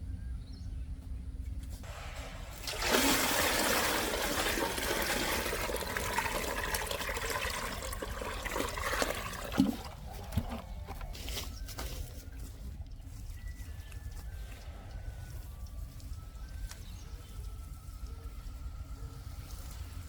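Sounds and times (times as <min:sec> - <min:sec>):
rush of pouring water: 0:01.9 - 0:10.5.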